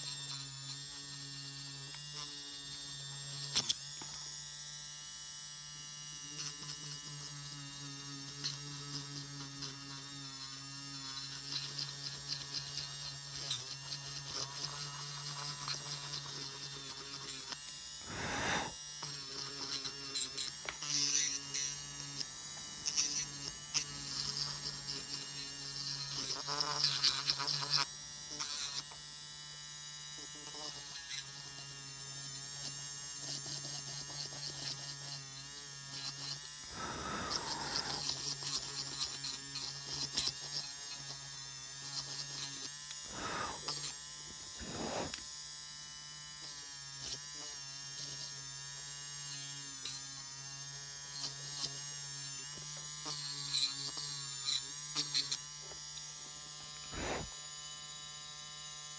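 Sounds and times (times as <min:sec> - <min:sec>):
nail drill motor whine: 0:06.2 - 0:29.0, 0:30.2 - 0:45.3, 0:51.1 - 0:57.4
short noisy bursts: 0:18.0 - 0:18.8, 0:36.7 - 0:38.1, 0:43.1 - 0:43.7, 0:44.5 - 0:45.2, 0:56.9 - 0:57.3.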